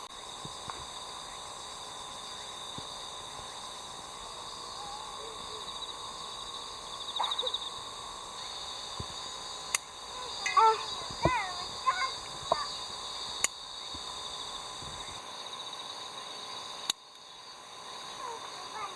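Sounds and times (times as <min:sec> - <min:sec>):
faint calls: 0:00.0 - 0:18.9
high-pitched insect chorus: 0:00.0 - 0:18.9
person speaking: 0:10.1 - 0:12.9.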